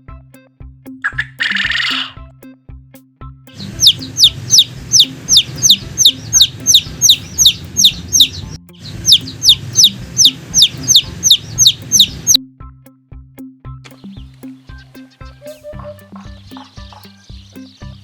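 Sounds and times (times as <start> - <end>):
chicks peeping: 3.6 - 12.4, 14.0 - 18.0.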